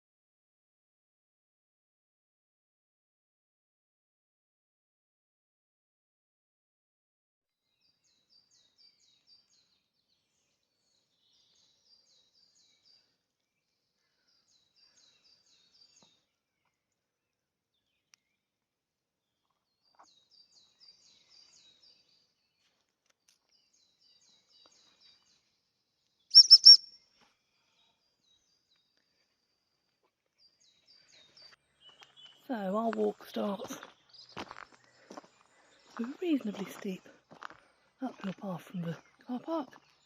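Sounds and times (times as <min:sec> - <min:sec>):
faint songbird singing: 0:07.6 - 0:40.0
loud high bird chirp: 0:26.3 - 0:28.5.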